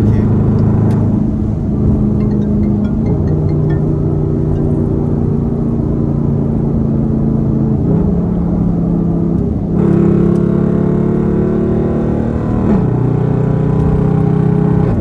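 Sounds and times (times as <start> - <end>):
car exhaust droning: 0.0 - 8.8.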